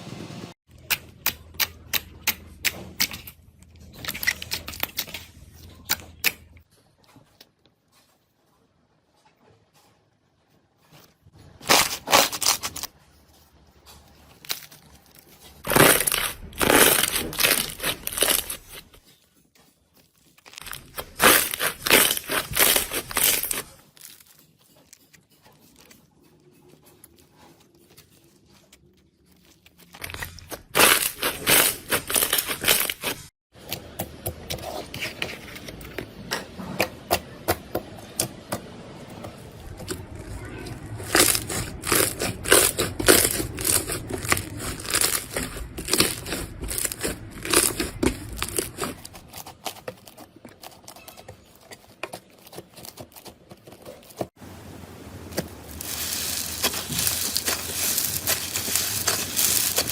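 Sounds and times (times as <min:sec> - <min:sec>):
slime crackling and crinkling: 0:11.3 - 0:13.0, 0:13.7 - 0:33.4, 0:39.4 - 0:54.4, 0:55.1 - 0:59.9.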